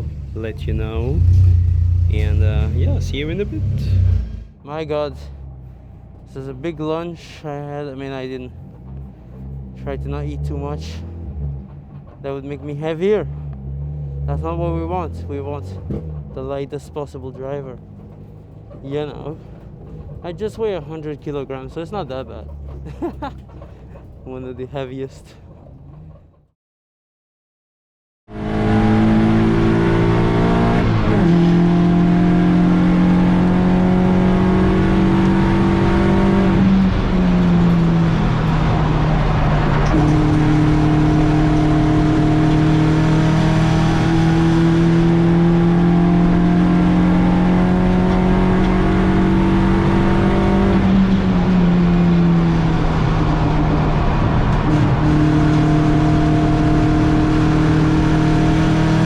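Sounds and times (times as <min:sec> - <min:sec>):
race car engine at high revs: 0:00.0 - 0:04.6, 0:28.3 - 0:59.0.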